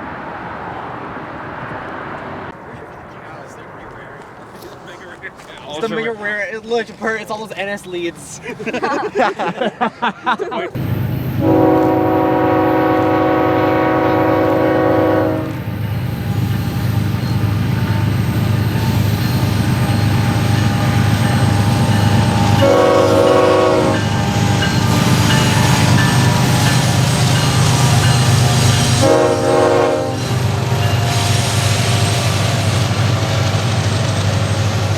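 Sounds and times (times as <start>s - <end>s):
train rumble and wheel clatter: 0.0s - 8.3s, 10.7s - 34.9s
locomotive horn chime: 11.3s - 15.7s, 16.4s - 31.3s.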